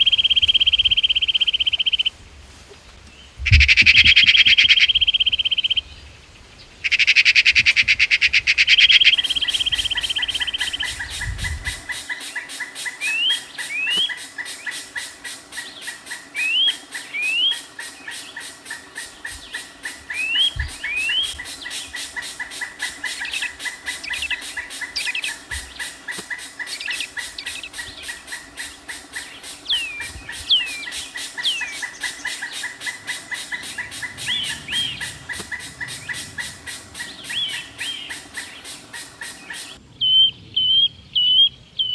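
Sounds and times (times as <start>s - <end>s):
loud rapid bird call: 8.7s - 39.8s
constant high tone: 9.0s - 39.8s
fast pulsing chorus: 9.0s - 39.8s
short rising bird whistles: 9.1s - 15.1s.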